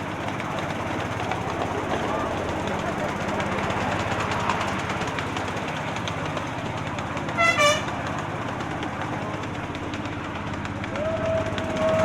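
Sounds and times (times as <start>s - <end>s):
miniature train rumbling: 0.0s - 12.0s
two-tone train horn toot: 7.3s - 8.0s.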